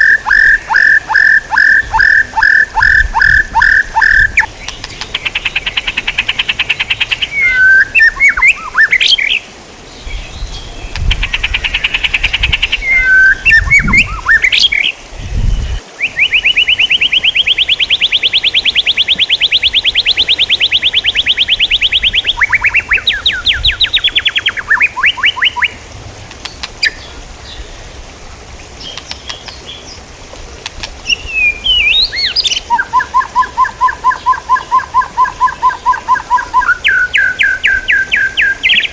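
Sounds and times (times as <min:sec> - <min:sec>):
bird fast trill: 0:00.0 - 0:09.4, 0:16.0 - 0:25.8
songbird chirps and whistles: 0:00.0 - 0:25.8, 0:31.0 - 0:38.9.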